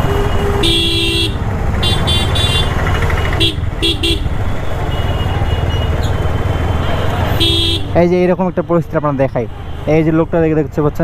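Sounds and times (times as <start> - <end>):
motorcycle engine rumble: 0.0 - 8.5
vehicle horns honking: 0.0 - 10.2
road traffic: 0.0 - 11.0.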